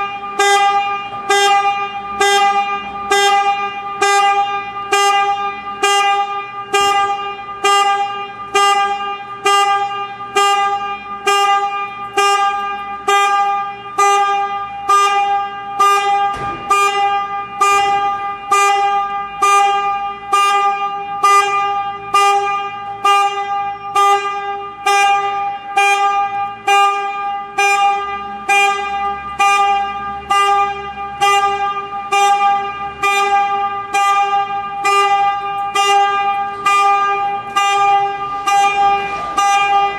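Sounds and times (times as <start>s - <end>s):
reversing alarm beeping: 0.0s - 39.9s.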